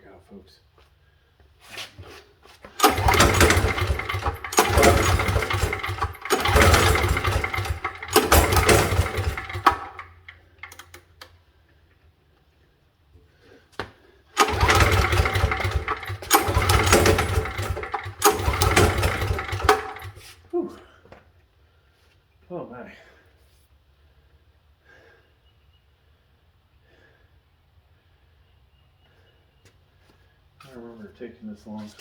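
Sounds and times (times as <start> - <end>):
generator recoil pull-start: 2.6 - 11.3, 14.4 - 20.4.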